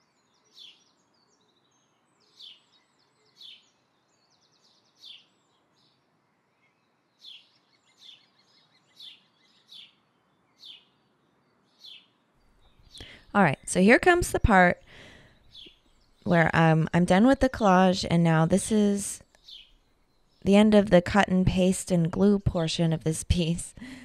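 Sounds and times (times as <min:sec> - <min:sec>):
songbird chirping: 0:00.0 - 0:24.0.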